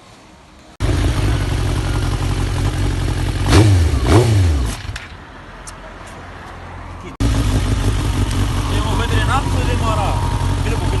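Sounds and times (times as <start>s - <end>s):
motorcycle engine revving: 0.8s - 5.0s, 7.2s - 11.0s.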